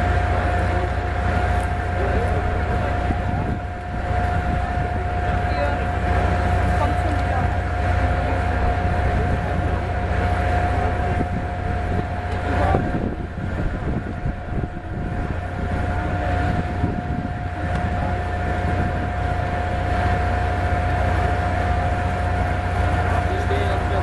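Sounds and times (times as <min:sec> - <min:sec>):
jet engine low rumble: 0:00.0 - 0:24.0
jet engine whine: 0:00.0 - 0:24.0.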